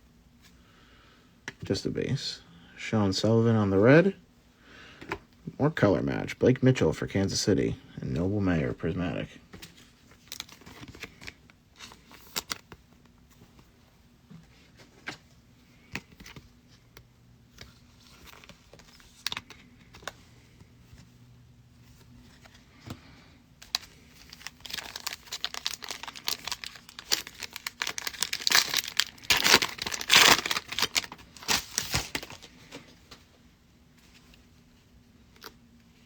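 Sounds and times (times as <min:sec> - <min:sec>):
foil wrapper tearing and crinkling: 0:23.7 - 0:32.5.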